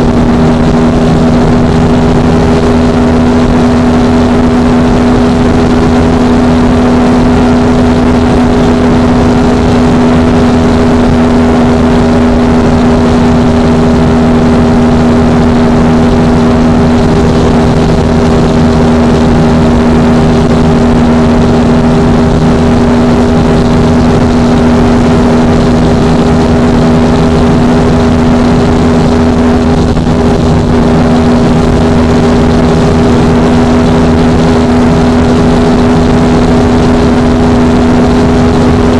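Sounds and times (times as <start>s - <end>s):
motorcycle engine at high revs: 0.0s - 38.9s
steady rushing noise: 0.0s - 38.9s.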